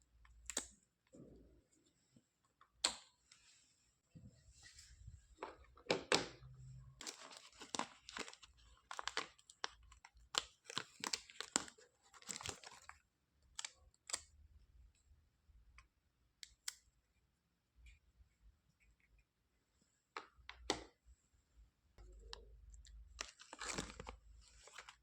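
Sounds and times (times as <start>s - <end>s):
rustling and crinkling handling noise: 3.3s - 13.0s, 22.0s - 25.0s.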